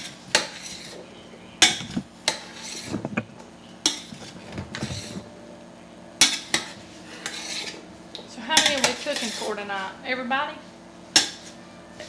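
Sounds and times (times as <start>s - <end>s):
stirring and scraping in pot: 0.0s - 5.3s, 6.2s - 7.9s, 8.5s - 9.9s.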